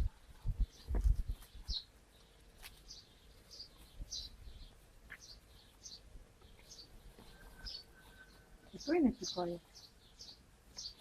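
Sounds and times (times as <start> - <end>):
dull low thumps: 0.0 - 1.8.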